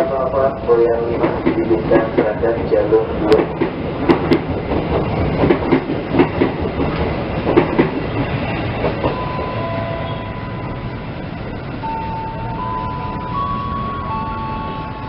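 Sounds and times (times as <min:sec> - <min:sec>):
train wheels clattering over joints: 0:03.3 - 0:09.4.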